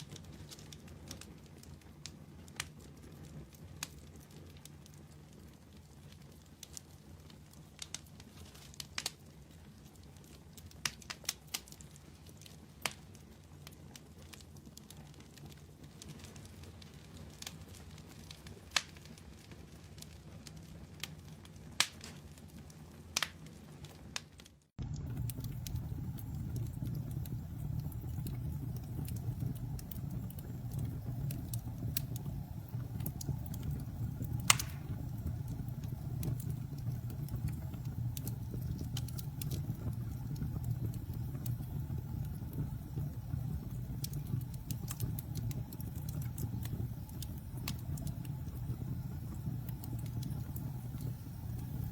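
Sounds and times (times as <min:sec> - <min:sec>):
campfire crackling: 0:00.0 - 0:51.9
fire popping: 0:00.0 - 0:51.9
low rumble: 0:24.8 - 0:51.9.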